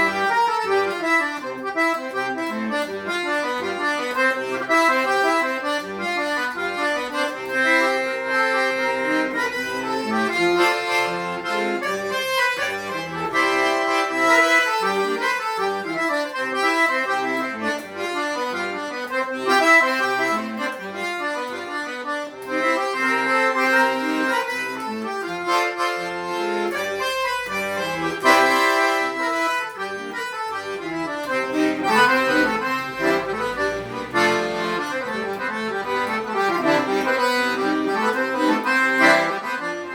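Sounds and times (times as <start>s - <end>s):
accordion playing lively tune: 0.0s - 39.9s.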